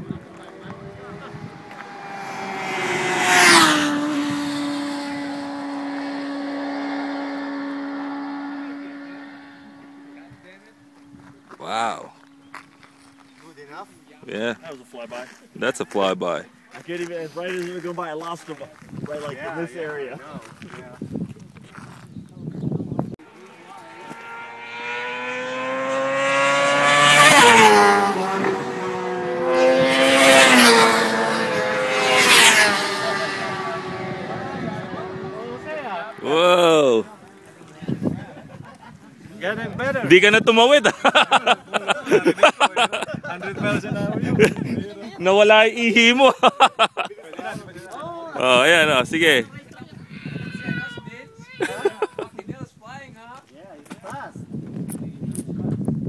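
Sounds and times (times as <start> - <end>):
motorcycle passing at high revs: 0.0 - 16.4, 23.2 - 46.4.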